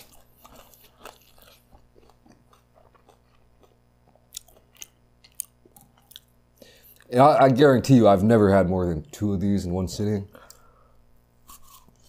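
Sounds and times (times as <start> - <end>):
chewing and mouth sounds: 0.0 - 7.1.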